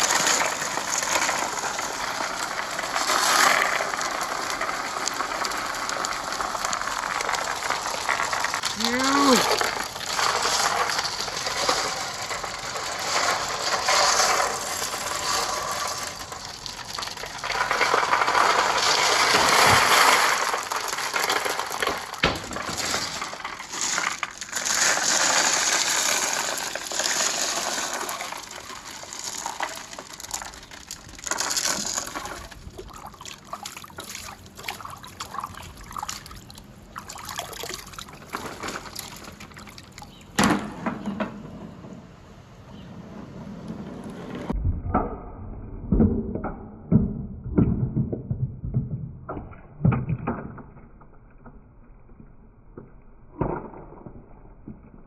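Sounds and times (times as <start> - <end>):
marbles rolling on track: 0.0 - 36.6, 37.2 - 40.2.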